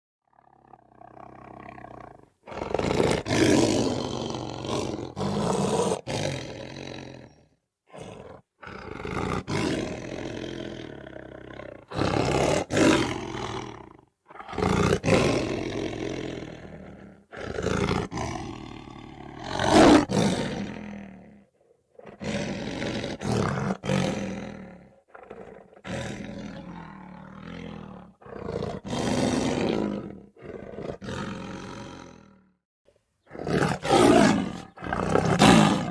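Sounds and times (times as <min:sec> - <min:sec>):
lions roaring: 0:07.9 - 0:21.2, 0:22.0 - 0:32.4, 0:33.3 - 0:35.9.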